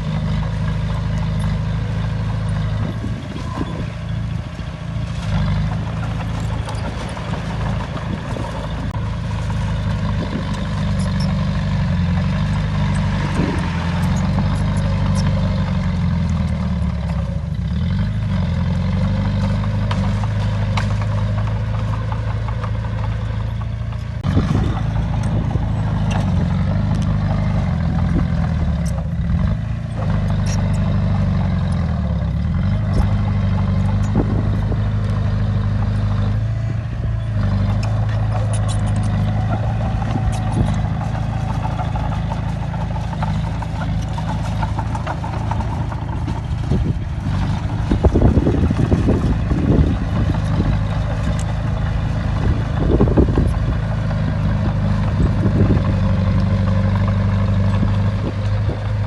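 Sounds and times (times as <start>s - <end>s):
bulldozer diesel engine running: 0.0s - 59.0s
knocks and clattering: 37.4s - 58.9s.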